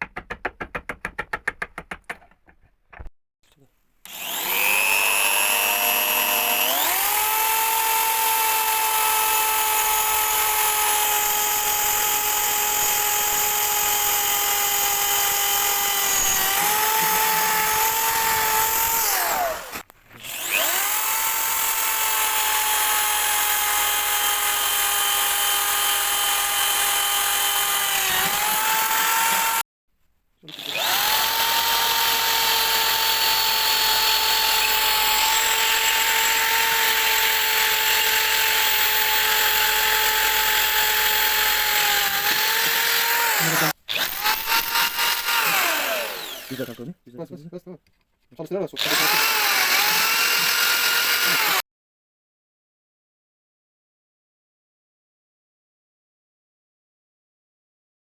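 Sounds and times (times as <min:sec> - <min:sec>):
power tool motor whining: 0:04.1 - 0:29.6, 0:30.5 - 0:46.9, 0:48.8 - 0:51.6.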